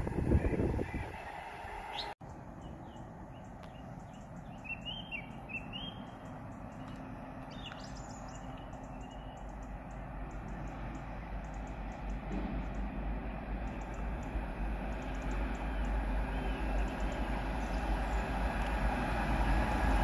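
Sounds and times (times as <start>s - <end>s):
small birds chirping: 1.9s - 12.9s.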